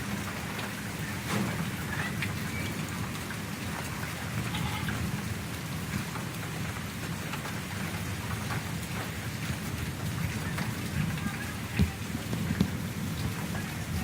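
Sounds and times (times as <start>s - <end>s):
steady rain: 0.0s - 14.0s
scattered drop taps: 10.6s - 12.8s.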